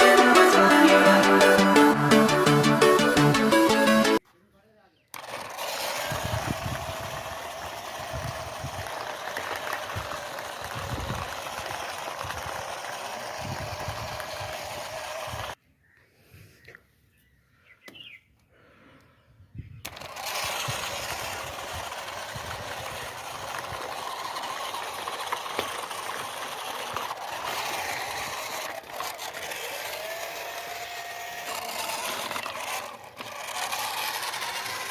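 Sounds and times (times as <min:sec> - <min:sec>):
small gear motor whirring: 0:05.1 - 0:15.6, 0:19.8 - 0:34.9.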